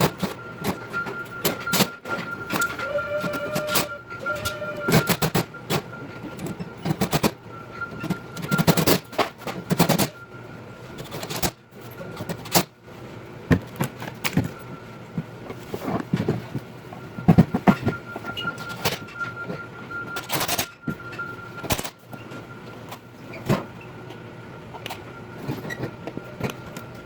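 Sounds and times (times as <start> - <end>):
faint steady high tone: 0.6 - 5.2.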